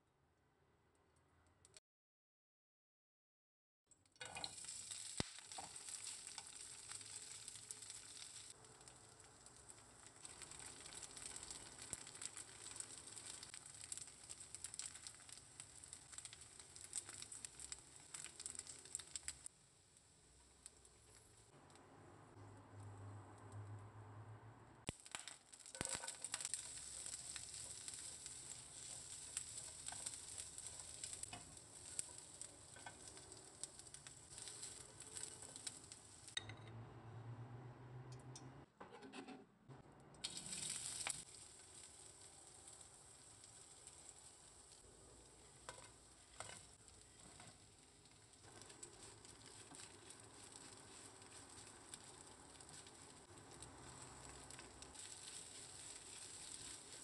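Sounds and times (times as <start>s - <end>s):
vegetables sizzling in oil: 4.2s - 21.5s, 24.8s - 36.4s, 40.2s - 57.0s
stirring clicks: 25.0s - 36.6s.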